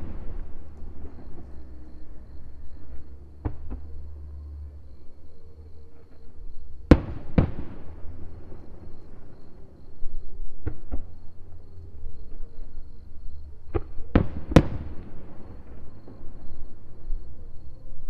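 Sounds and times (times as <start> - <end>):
continuous low rumble: 0.0 - 18.0
fireworks bangs: 6.9 - 9.3.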